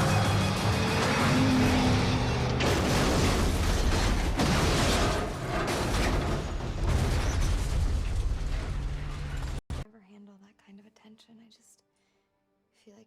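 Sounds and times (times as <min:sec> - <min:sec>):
film soundtrack music: 0:00.0 - 0:06.7
booming hits: 0:00.0 - 0:09.8.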